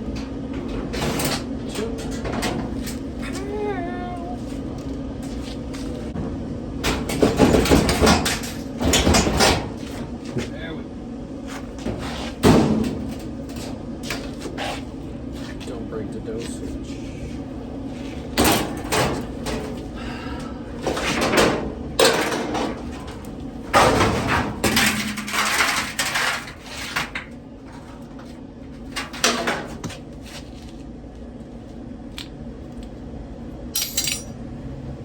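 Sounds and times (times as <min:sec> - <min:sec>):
metal parts knocking and rattling: 0:33.8 - 0:34.3.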